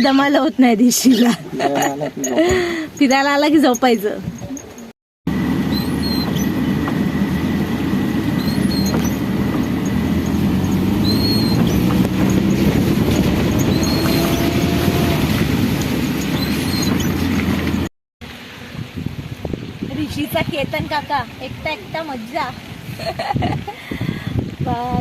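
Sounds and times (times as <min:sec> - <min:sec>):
freight train rumbling past: 0:05.3 - 0:17.9.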